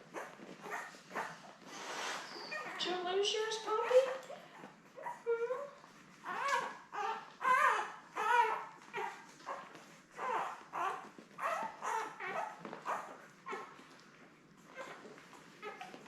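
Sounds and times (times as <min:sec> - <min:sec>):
puppies whining and squeaking: 0:00.0 - 0:16.0.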